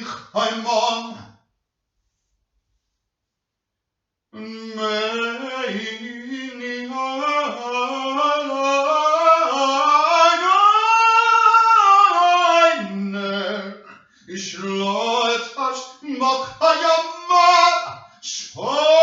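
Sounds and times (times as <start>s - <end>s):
person singing unaccompanied: 4.4s - 19.0s.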